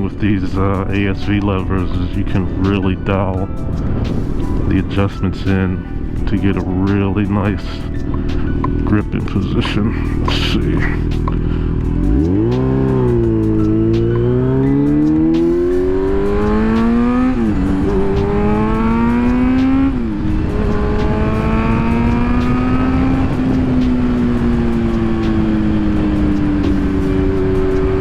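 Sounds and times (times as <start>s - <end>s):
wind noise: 0.0s - 28.0s
motorcycle engine accelerating: 8.1s - 28.0s.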